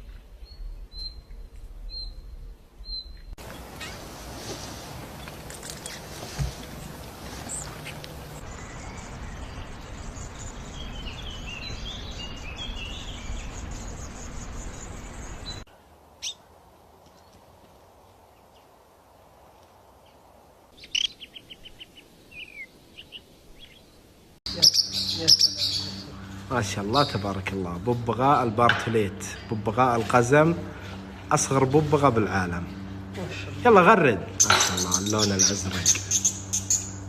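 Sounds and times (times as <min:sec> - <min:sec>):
small birds chirping: 0:00.0 - 0:17.6, 0:20.0 - 0:27.6, 0:34.3 - 0:37.0
background hiss: 0:02.6 - 0:10.9
downward-sliding bird calls: 0:03.4 - 0:08.4, 0:20.8 - 0:23.8
bird trill: 0:20.8 - 0:27.4, 0:34.4 - 0:37.0.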